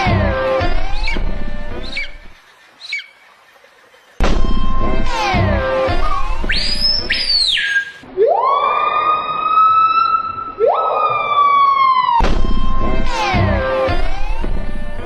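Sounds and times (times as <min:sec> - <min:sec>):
music: 0:00.0 - 0:02.4, 0:04.2 - 0:07.2, 0:12.3 - 0:15.0
siren-like wailing tones: 0:00.0 - 0:02.4, 0:04.2 - 0:15.0.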